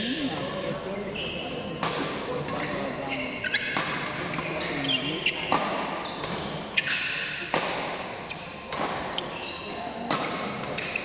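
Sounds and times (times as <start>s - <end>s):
shoes squeaking on court: 0.0s - 1.8s, 2.5s - 7.0s
racket hitting shuttlecock: 3.6s - 4.6s, 5.4s - 9.4s, 10.0s - 11.0s.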